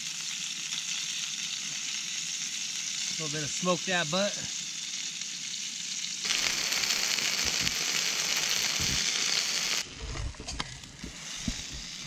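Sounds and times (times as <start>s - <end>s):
chicken frying in oil: 0.0s - 10.0s, 10.8s - 12.0s.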